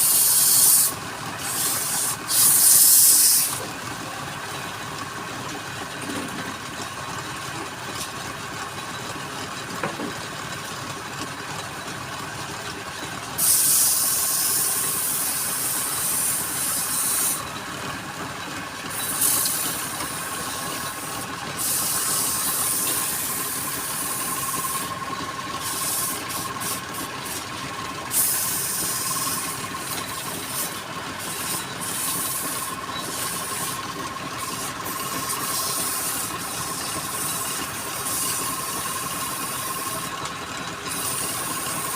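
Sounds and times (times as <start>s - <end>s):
turning tool cutting wood: 0.0s - 4.1s, 13.4s - 41.9s
wood lathe running: 0.0s - 41.9s.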